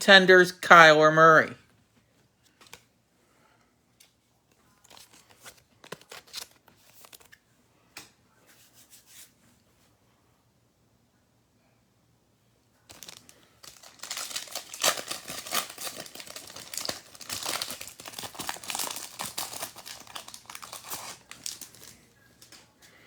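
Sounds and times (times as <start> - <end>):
foil wrapper tearing and crinkling: 4.8 - 7.3, 12.9 - 22.6.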